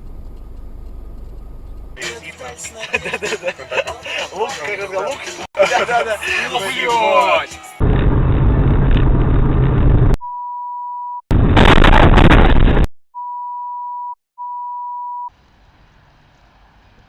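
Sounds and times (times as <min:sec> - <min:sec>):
loud noisy dashcam audio: 0:11.3 - 0:12.9
censor beeps: 0:13.2 - 0:15.3.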